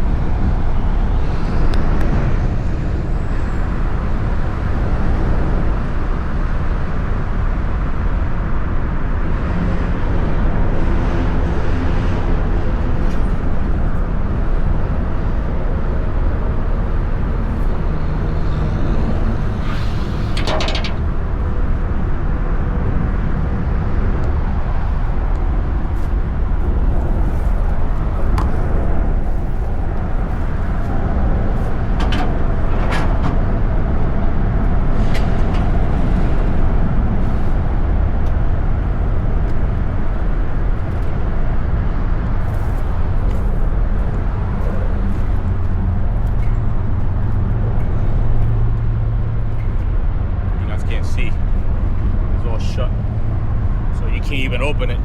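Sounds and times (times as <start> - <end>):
garbage truck engine rumbling: 18.6 - 22.6
sharp metallic knocks: 19.7 - 21.2.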